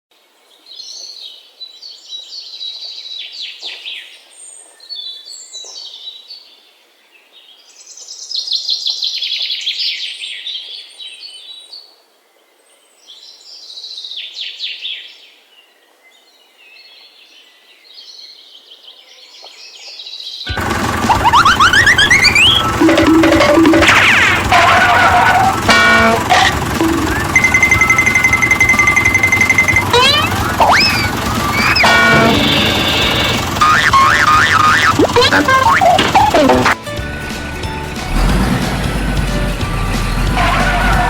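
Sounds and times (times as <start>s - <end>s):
songbirds chirping and trilling: 0.3s - 36.7s
loud music: 20.5s - 41.0s.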